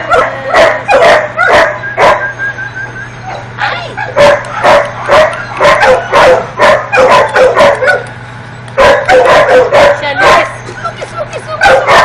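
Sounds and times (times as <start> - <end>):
dog barking: 0.0 - 2.3, 4.0 - 8.1, 8.8 - 10.6, 11.6 - 12.0.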